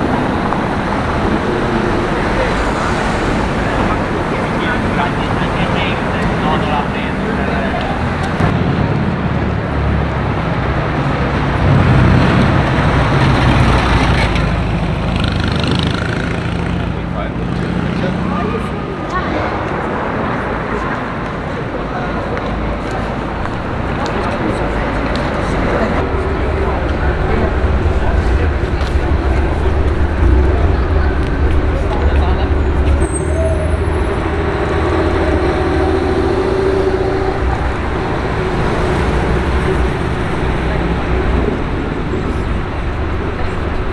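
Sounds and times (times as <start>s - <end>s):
car engine running: 0.0s - 8.5s, 23.3s - 33.0s
street traffic: 0.0s - 43.9s
vehicle engine rumbling: 0.0s - 43.9s.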